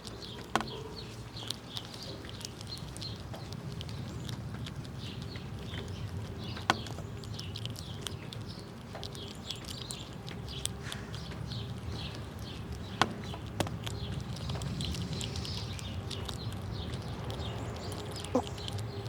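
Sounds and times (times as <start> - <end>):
squirrels chewing and cracking nuts: 0.0 - 19.0.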